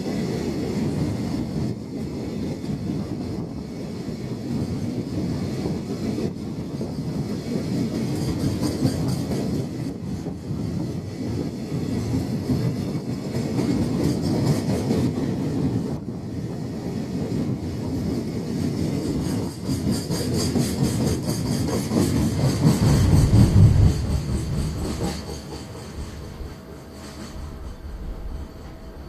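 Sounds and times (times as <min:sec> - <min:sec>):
rumble of train wagons: 0:00.0 - 0:29.0
wheels clacking over rail joints: 0:19.4 - 0:29.0.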